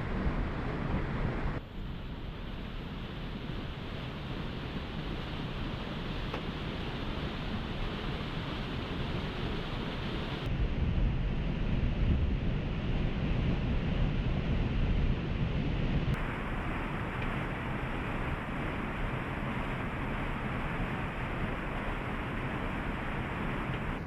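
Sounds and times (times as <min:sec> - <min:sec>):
waterfall rushing: 0:16.2 - 0:23.6.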